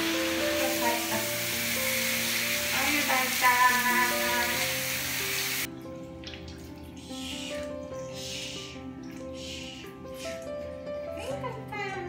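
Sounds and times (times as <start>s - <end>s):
shower head spraying water: 0.0s - 5.7s
light background music: 0.0s - 12.0s.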